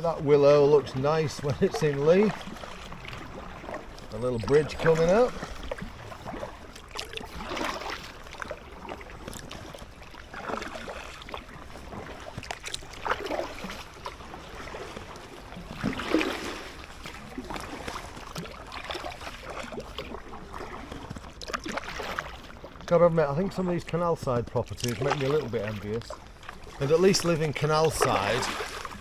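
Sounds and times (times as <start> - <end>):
paddle swishing and splashing: 0.0 - 29.0.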